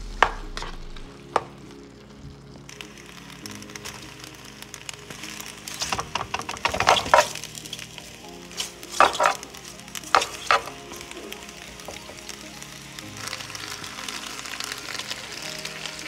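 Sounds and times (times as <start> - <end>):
background music: 0.0 - 16.0
light sizzle: 0.0 - 16.0
spatula scraping a pan: 5.8 - 7.5, 8.5 - 11.0.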